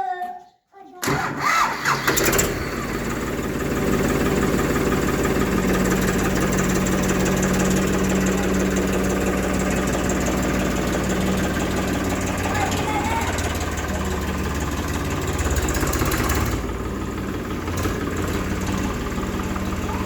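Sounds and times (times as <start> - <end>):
diesel engine running: 1.2 - 20.0.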